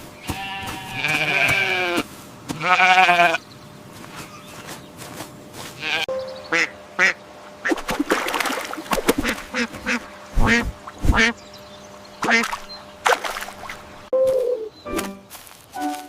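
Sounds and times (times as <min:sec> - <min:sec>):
ducks quacking: 0:05.7 - 0:07.9, 0:08.8 - 0:11.4, 0:12.2 - 0:13.9.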